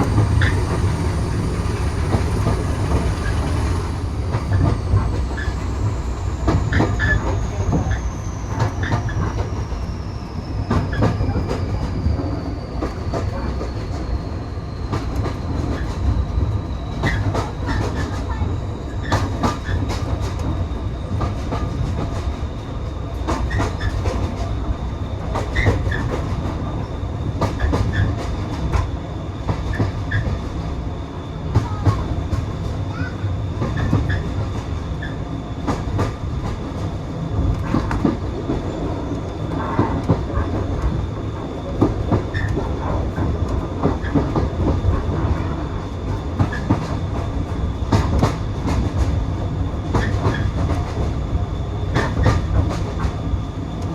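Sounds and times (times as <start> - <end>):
wheels clicking over track: 0.0 - 8.0
train carriage rumble: 0.0 - 53.9.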